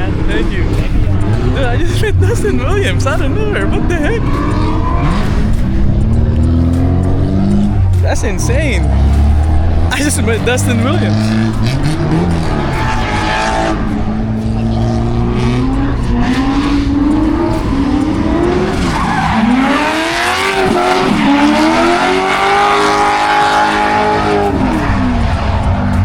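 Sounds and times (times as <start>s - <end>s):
car engine revving: 0.0s - 26.0s
tires squealing: 0.0s - 26.0s.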